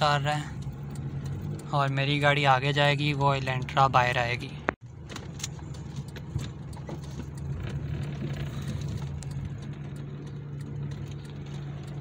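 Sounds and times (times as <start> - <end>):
car engines running at low speed: 0.0 - 12.0.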